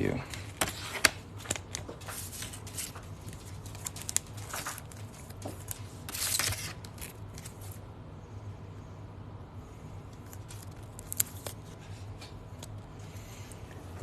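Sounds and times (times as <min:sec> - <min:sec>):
plastic sleeves crinkling: 0:00.2 - 0:07.8, 0:10.2 - 0:12.0.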